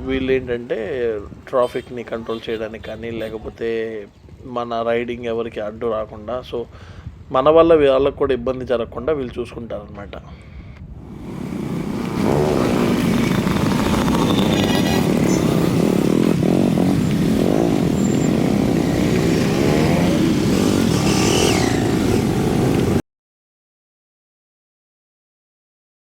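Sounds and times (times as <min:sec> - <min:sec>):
motorcycle engines running loud: 0:11.0 - 0:23.0.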